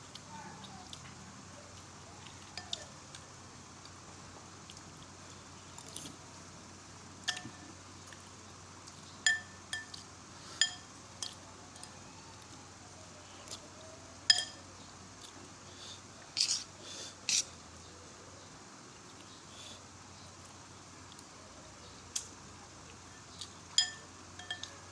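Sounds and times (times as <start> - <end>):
metal spoon clinking on bowl: 7.3 - 7.6, 9.2 - 10.0, 10.6 - 11.9, 14.3 - 14.6, 23.8 - 24.8.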